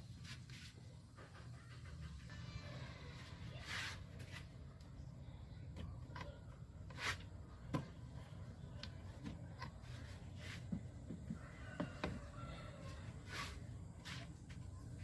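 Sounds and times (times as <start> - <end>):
short rustling hisses: 3.5 - 4.5.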